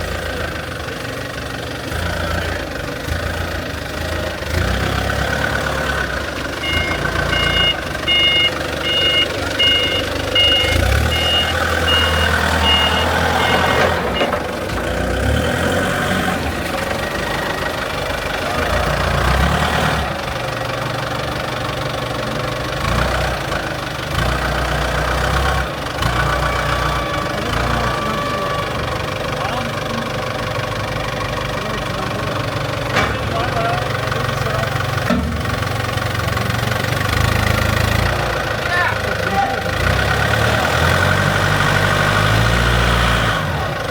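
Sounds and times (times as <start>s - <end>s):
excavator diesel engine rumbling: 0.0s - 43.9s
travel alarm beeping: 6.6s - 14.4s.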